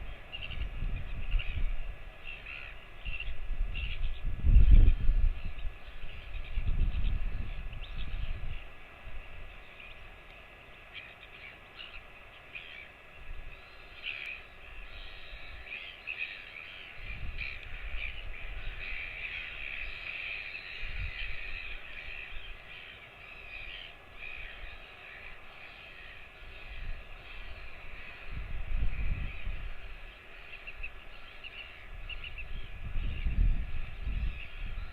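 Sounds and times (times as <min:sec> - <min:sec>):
birds cawing: 0:13.6 - 0:32.5.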